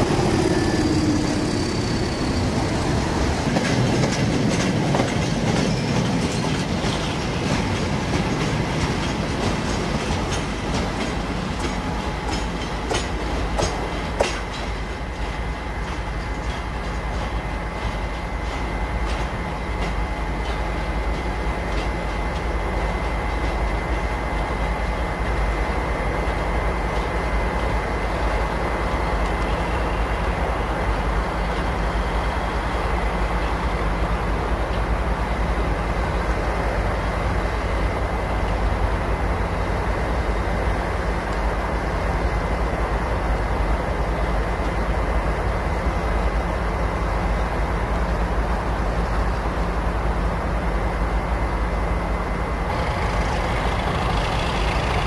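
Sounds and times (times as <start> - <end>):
freight train rumbling: 0.0 - 55.0
wheel clicks over rail joints: 52.7 - 55.0.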